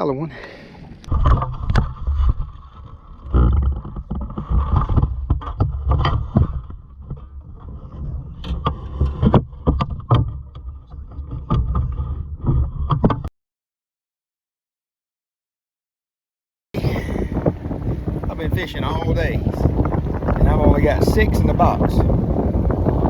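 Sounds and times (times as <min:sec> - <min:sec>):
knocks and clatter in boat: 0:00.8 - 0:13.3, 0:16.8 - 0:23.0
wind buffeting microphone: 0:16.8 - 0:23.0.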